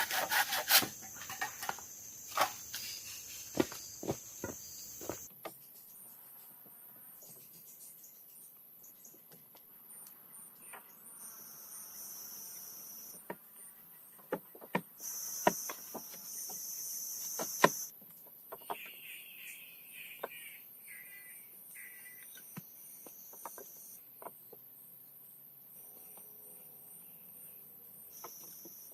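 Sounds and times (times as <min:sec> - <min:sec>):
high-pitched insect trill: 0:00.1 - 0:06.0, 0:15.0 - 0:17.9
loud insect buzz: 0:15.0 - 0:17.9
chirps: 0:26.9 - 0:28.9.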